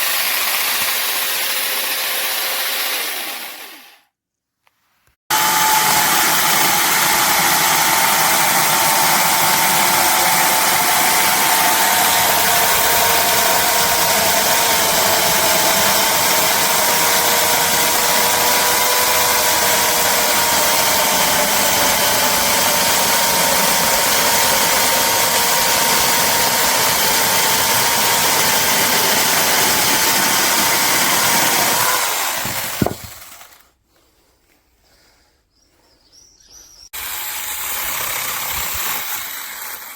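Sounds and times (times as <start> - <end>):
electric chainsaw whine: 0.0 - 4.0, 5.3 - 33.7, 37.0 - 39.9.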